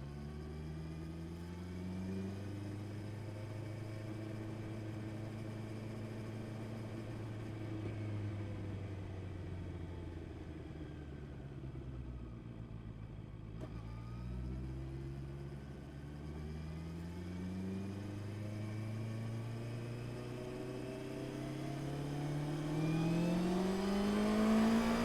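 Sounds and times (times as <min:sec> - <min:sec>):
motorcycle engine running: 0:20.8 - 0:25.0.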